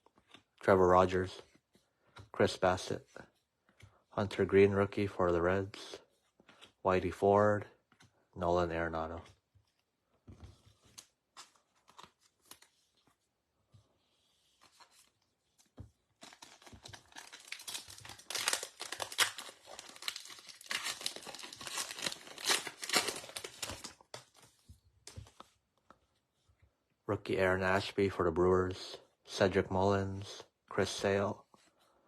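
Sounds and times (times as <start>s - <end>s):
foil wrapper tearing and crinkling: 16.2s - 24.0s.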